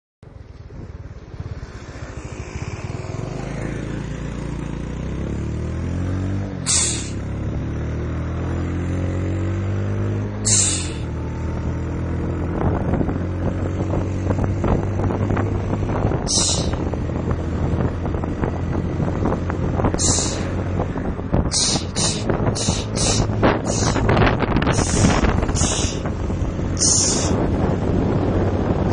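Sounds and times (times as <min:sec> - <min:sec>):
motorcycle engine accelerating: 0:00.3 - 0:28.9
turbo hiss: 0:06.7 - 0:07.2, 0:10.5 - 0:11.1, 0:16.3 - 0:16.8, 0:20.0 - 0:20.6, 0:21.5 - 0:24.1, 0:24.7 - 0:26.1, 0:26.8 - 0:27.4.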